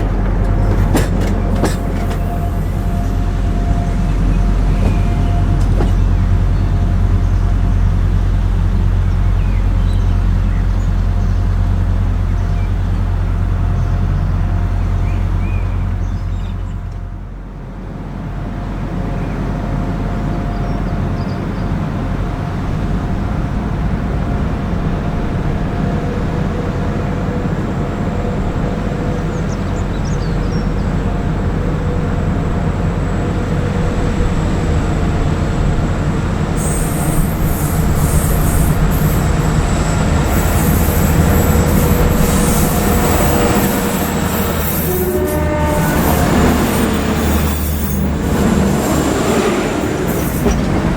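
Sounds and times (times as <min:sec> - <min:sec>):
diesel train rumbling: 0:00.0 - 0:50.9
high-pitched screech: 0:36.6 - 0:50.6.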